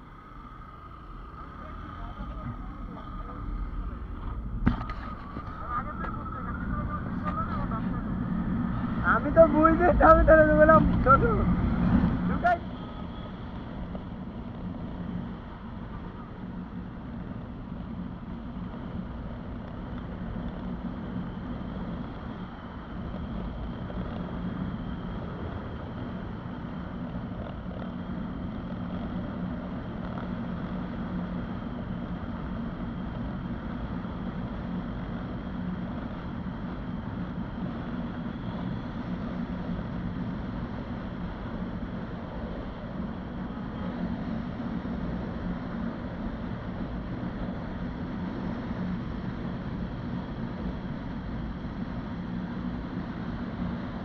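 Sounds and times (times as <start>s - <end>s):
wind buffeting microphone: 0.0s - 15.9s
motorcycle engine cruising: 0.0s - 49.6s.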